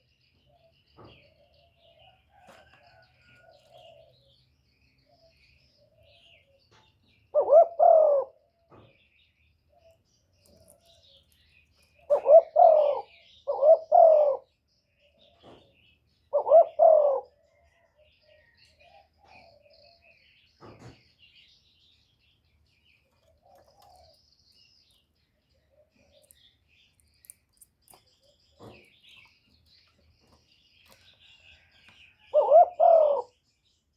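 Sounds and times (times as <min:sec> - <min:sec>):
small birds chirping: 0:00.0 - 0:33.9
dove cooing: 0:07.3 - 0:08.5, 0:12.0 - 0:14.5, 0:16.3 - 0:20.0, 0:31.5 - 0:33.4.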